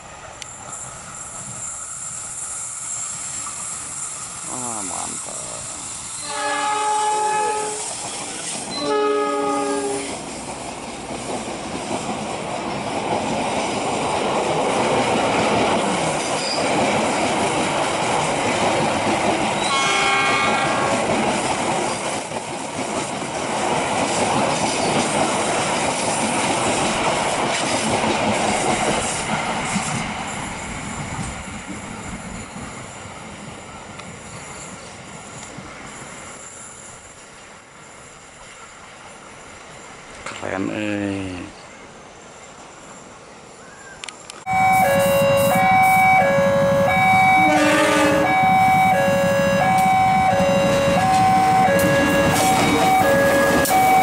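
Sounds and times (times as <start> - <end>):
train rumbling past on rails: 0.0 - 43.4, 44.4 - 54.0
diesel locomotive horn: 6.2 - 8.0, 8.7 - 10.2, 19.6 - 21.1, 44.5 - 54.0
brief high tone: 44.5 - 54.0.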